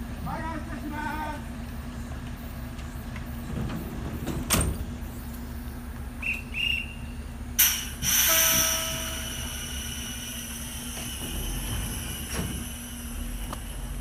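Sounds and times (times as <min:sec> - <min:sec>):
train low hum: 0:00.0 - 0:14.0
short whistle peeps: 0:06.2 - 0:07.1
air hiss burst: 0:07.6 - 0:13.4.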